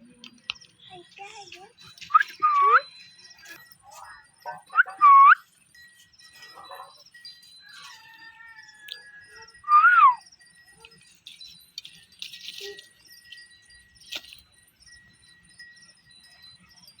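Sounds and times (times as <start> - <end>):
faint chirps and clicks: 0.0 - 5.4, 6.4 - 14.9
thin steady high tone: 0.0 - 17.0
parrot call: 2.1 - 2.9, 4.6 - 5.4, 7.8 - 10.2.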